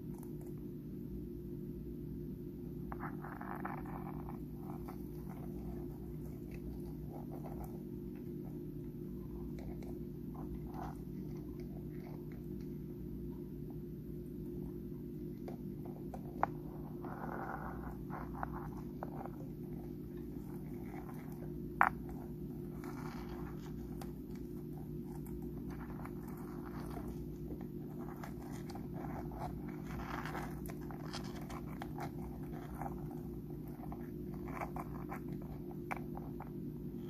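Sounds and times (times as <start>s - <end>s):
steady low hum: 0.0s - 37.0s
crab crunching food: 20.2s - 36.4s.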